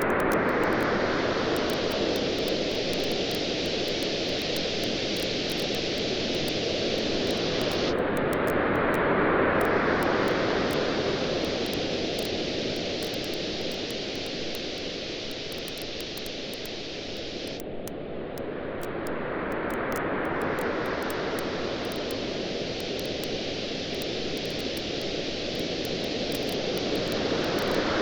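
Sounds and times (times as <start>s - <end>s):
campfire crackling: 0.0s - 8.9s, 10.0s - 17.8s, 19.6s - 28.0s
waves washing on shore: 20.1s - 28.0s.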